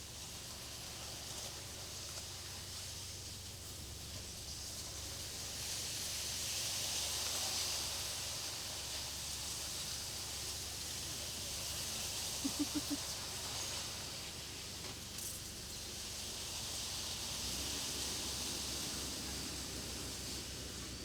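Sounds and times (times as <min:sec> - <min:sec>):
boat engine running low: 0:09.8 - 0:21.0.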